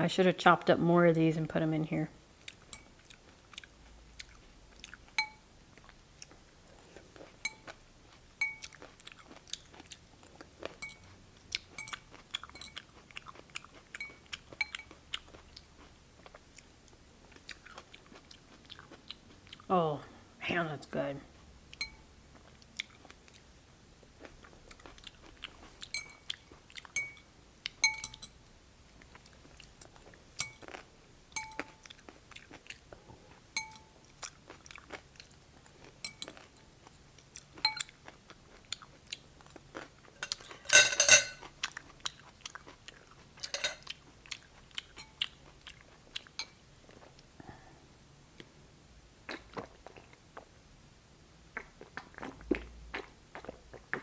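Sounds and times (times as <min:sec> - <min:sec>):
crunchy chewing: 0:02.4 - 0:19.7, 0:31.6 - 0:33.0, 0:34.1 - 0:36.6, 0:41.4 - 0:46.3
utensil clinking against bowl: 0:27.8 - 0:28.4, 0:40.2 - 0:41.4, 0:43.4 - 0:43.9.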